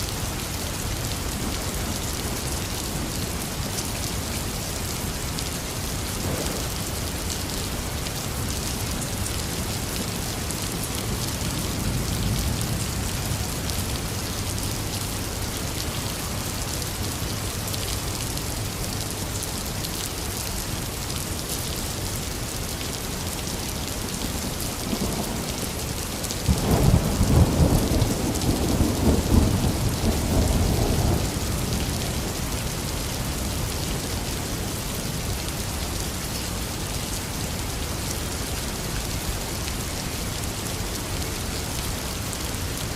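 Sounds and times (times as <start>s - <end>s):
heavy rain: 0.0s - 42.9s
thunder rumbling: 26.4s - 31.8s.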